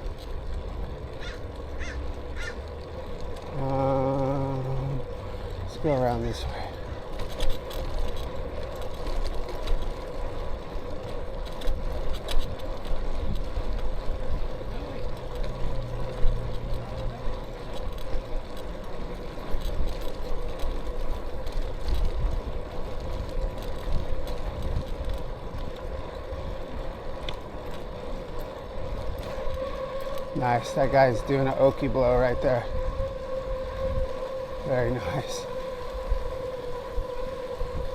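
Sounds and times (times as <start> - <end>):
bicycle road noise: 0.0 - 37.9
steady whine: 23.7 - 37.9
wind rushing over microphone: 28.8 - 37.9.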